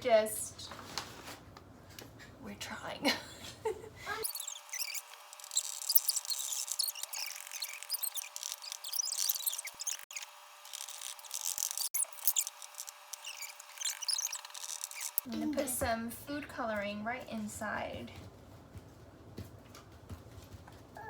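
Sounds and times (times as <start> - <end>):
packing paper crinkling: 4.2 - 15.3.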